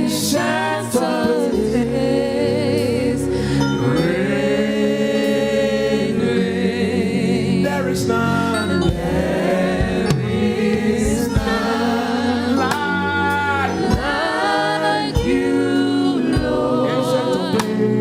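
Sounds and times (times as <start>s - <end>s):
voices singing praise song: 0.0s - 18.0s
band with bass and drums: 8.2s - 18.0s.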